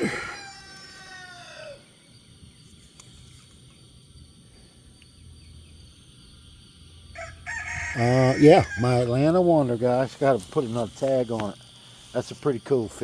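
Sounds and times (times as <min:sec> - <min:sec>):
rooster crowing: 0:00.0 - 0:02.1, 0:07.1 - 0:09.2
high-pitched insect drone: 0:00.0 - 0:13.0.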